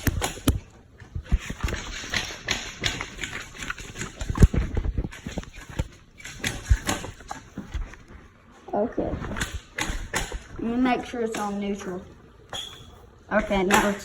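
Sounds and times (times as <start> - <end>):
knocks and thumps: 0.0 - 8.3, 9.1 - 11.5
rustling: 0.0 - 13.3.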